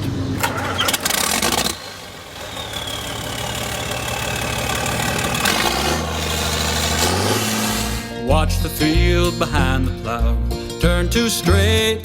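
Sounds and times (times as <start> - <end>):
engine idling: 0.0 - 8.2.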